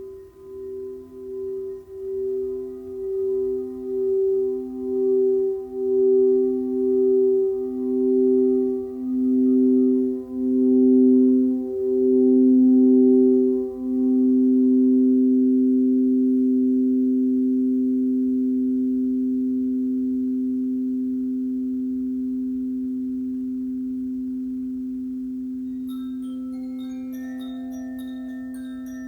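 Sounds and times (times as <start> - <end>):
singing bowl ringing: 0.0 - 29.0
high bell-like notes: 25.6 - 29.0.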